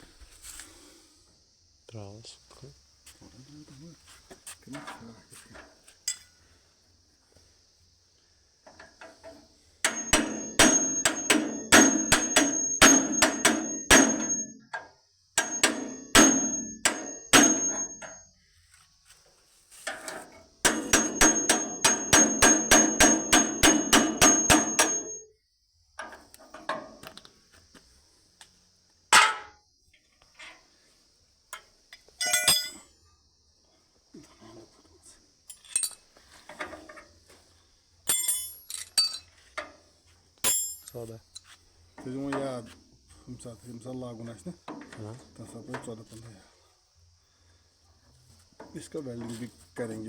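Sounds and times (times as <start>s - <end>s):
hammer striking metal: 9.8s - 14.6s, 15.4s - 18.2s, 20.6s - 25.2s
metal clattering: 9.9s - 14.6s, 15.4s - 18.2s, 19.9s - 25.2s.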